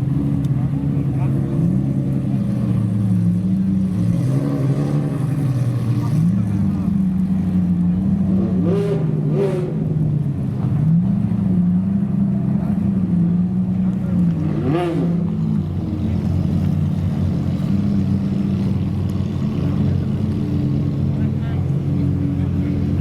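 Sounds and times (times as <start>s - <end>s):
sports car engines idling: 0.0s - 23.0s.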